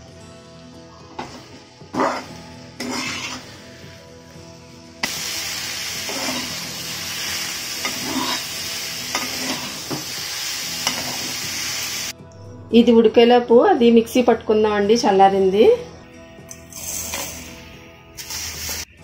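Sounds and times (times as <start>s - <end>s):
spatula scraping wok: 1.9s - 4.0s, 5.9s - 10.1s
chicken sizzling: 5.0s - 12.1s, 18.2s - 18.9s.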